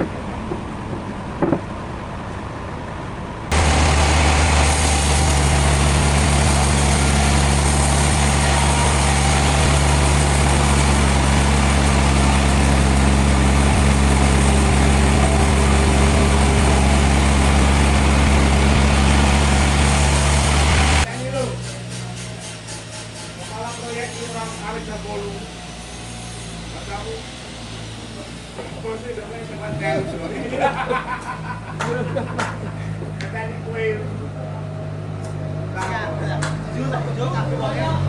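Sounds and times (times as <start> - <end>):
short knocks: 0.0 - 1.7
sawmill machinery running: 0.0 - 38.0.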